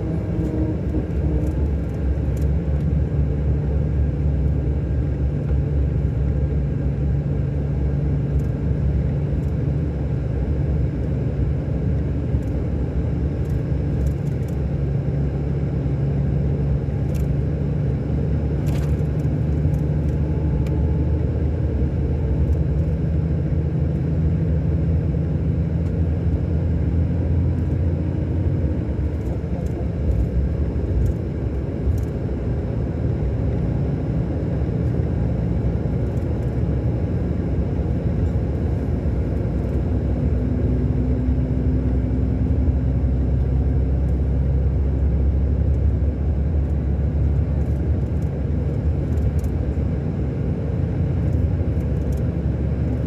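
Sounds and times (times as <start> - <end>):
diesel engine running: 0.0 - 53.0
faint light ticks: 1.4 - 2.9, 13.4 - 14.6, 17.0 - 17.4, 49.0 - 49.6, 51.2 - 52.2.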